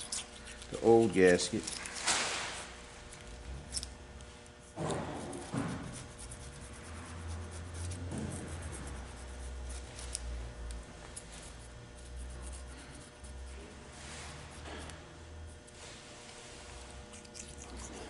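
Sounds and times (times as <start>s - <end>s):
razor blade scraping gasket: 0.0s - 2.0s, 4.6s - 10.4s, 17.0s - 18.0s.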